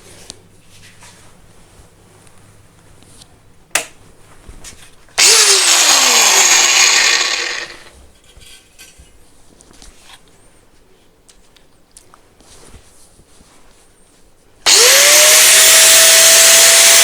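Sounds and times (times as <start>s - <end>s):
sharp click: 3.8s - 4.0s
angle grinder whining: 5.2s - 7.9s, 14.7s - 17.0s.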